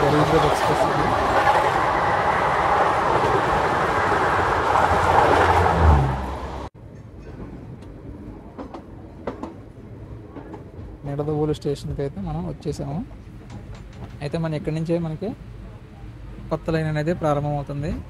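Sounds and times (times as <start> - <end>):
passing train roar: 0.0 - 11.3
train rumble: 0.0 - 18.0
light clicks of train wheels: 6.9 - 11.0, 12.9 - 14.6.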